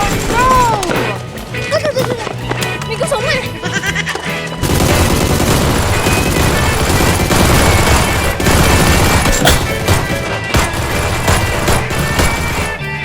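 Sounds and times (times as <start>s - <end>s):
background music: 0.0s - 13.0s
automatic gunfire: 4.6s - 13.0s.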